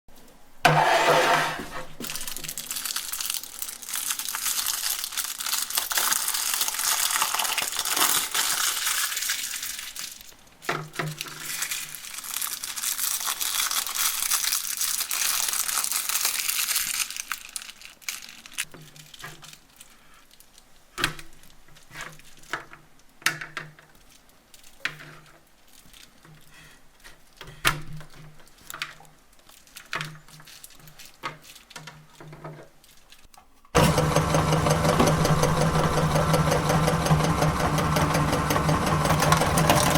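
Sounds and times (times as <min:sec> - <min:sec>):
candy crunching in grinder: 0:00.7 - 0:20.8, 0:28.1 - 0:39.9.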